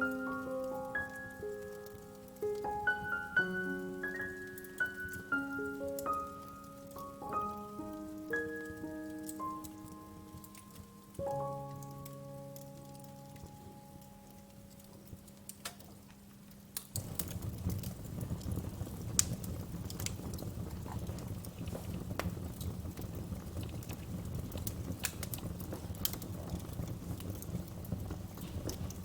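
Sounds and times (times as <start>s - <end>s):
low rumble of flames: 0.0s - 29.0s
wood fire crackling: 0.0s - 29.0s.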